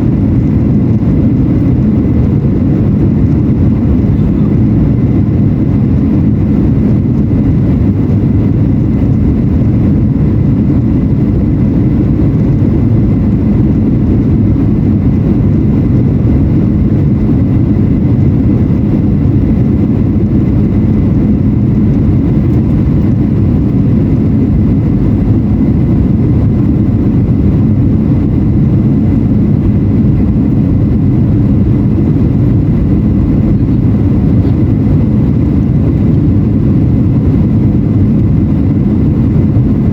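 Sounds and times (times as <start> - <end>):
airflow over fuselage: 0.0 - 39.9
jet engines rumbling: 0.0 - 39.9.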